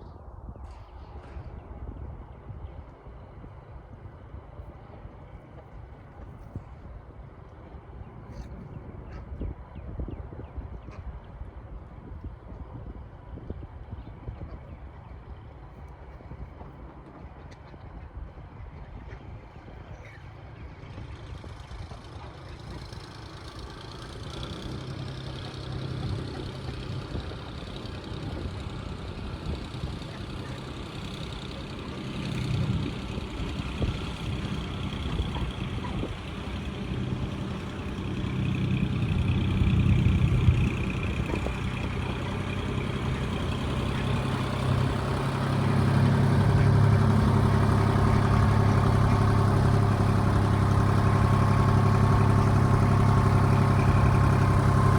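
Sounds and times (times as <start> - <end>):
tractor engine humming: 18.8 - 54.9.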